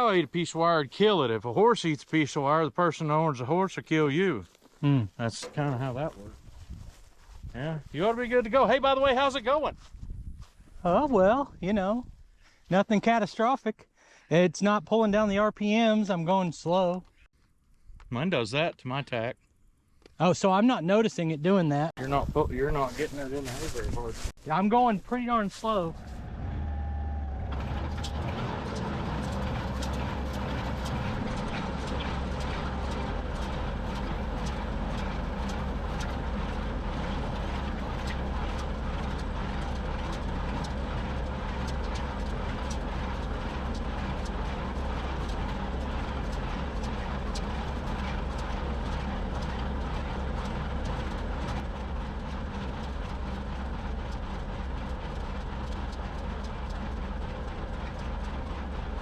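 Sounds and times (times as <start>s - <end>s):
tractor diesel engine running: 0.0s - 2.6s, 3.3s - 12.2s, 22.0s - 59.0s
baler mechanism clattering: 25.6s - 59.0s.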